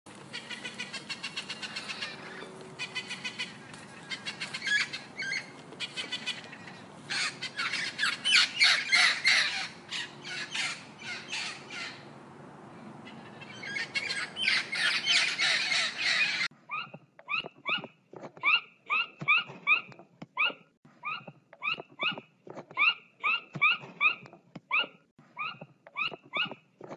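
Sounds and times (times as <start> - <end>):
budgerigar chattering: 0.3 - 12.0.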